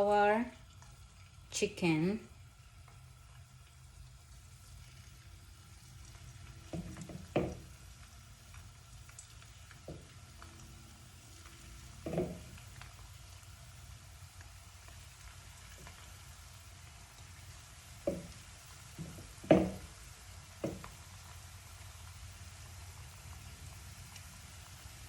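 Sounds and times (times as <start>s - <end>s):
chicken frying in hot oil: 0.0s - 25.0s
knocks against a pan: 6.7s - 7.8s, 12.0s - 12.6s, 18.0s - 18.4s, 19.0s - 19.9s, 20.6s - 21.0s.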